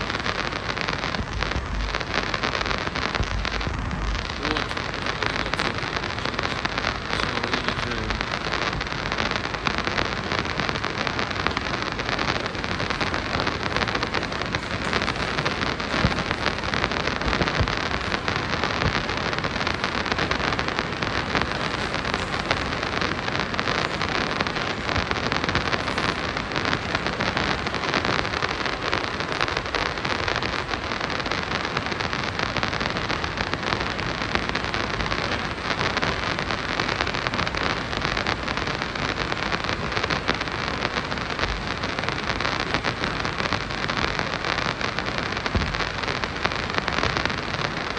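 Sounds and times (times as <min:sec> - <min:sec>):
constant crackle: 0:00.0 - 0:47.9
wheels on rails: 0:08.2 - 0:30.9.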